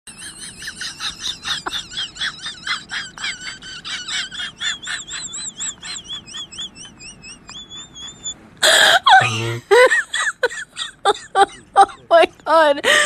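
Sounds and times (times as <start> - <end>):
bird chirping: 4.2 - 8.4.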